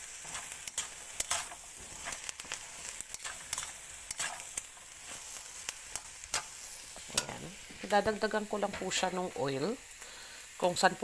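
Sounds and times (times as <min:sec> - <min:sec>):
spatula scraping a pan: 0:00.0 - 0:08.0
vegetables sizzling in a wok: 0:00.0 - 0:11.0.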